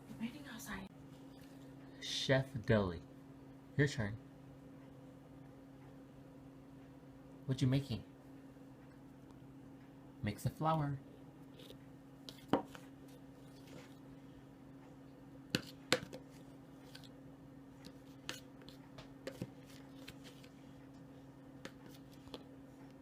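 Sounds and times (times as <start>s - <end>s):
steady low hum: 0.0s - 23.0s
flour mixed in bowl clicking: 17.8s - 21.0s, 21.6s - 23.0s.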